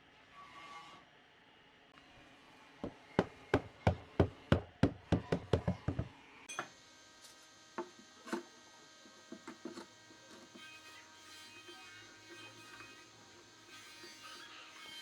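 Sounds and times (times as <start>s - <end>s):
hand tool knocking on wood: 2.8s - 6.1s.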